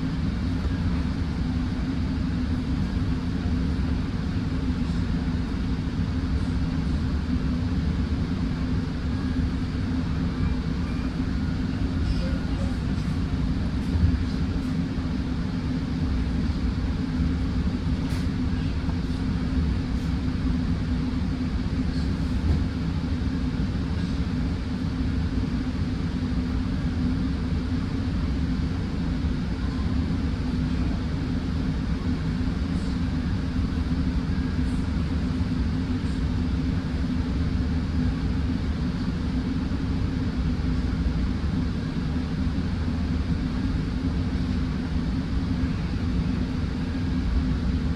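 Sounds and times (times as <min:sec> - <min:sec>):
train wheels rumbling on rails: 0:21.9 - 0:22.9.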